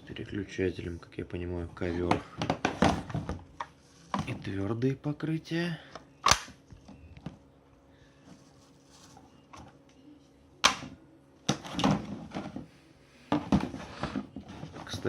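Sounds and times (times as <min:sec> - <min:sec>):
rustling: 0:08.2 - 0:09.7.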